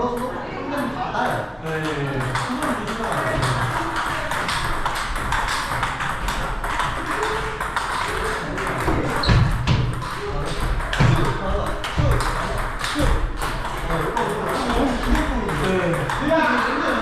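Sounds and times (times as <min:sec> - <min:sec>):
table tennis ball hits and bounces: 0:01.7 - 0:17.0.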